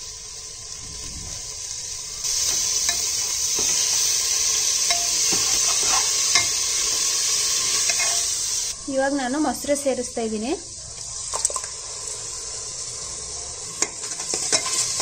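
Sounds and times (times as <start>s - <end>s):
masala sizzling in oil: 0.0s - 15.0s
steel spoon scraping pot: 4.8s - 6.8s, 7.6s - 8.3s.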